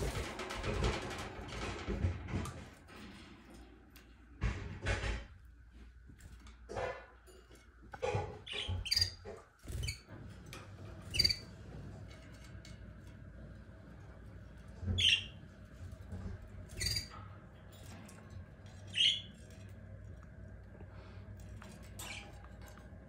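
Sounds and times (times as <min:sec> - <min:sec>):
caged birds chirping: 0:08.0 - 0:12.0, 0:14.0 - 0:19.8.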